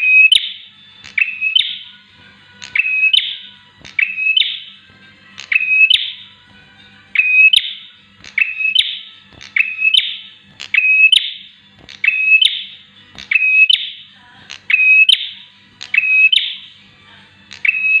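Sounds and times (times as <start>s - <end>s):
bird calling with buzzy note: 2.6s - 4.8s, 5.4s - 6.4s, 7.1s - 16.8s, 17.5s - 18.0s.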